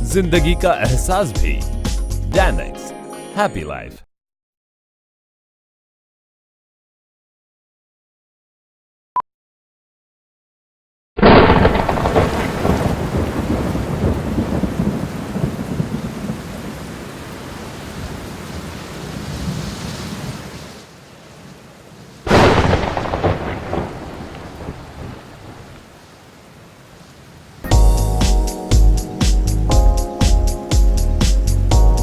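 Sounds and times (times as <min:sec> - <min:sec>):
thunderclaps rumbling: 0:11.2 - 0:25.9.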